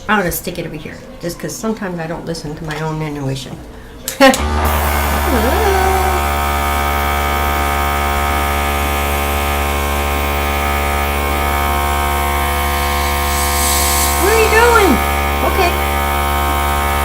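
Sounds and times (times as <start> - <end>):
electric air compressor humming: 4.4 - 17.0.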